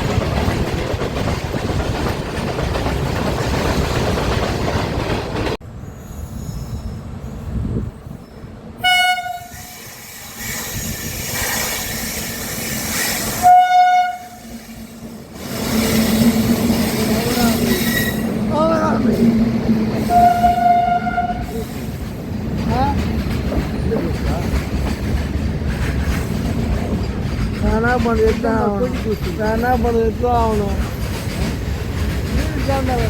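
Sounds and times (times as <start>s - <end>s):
train running past: 0.0s - 33.0s
locomotive horn blasts: 8.8s - 9.6s, 13.4s - 14.5s, 20.1s - 21.5s.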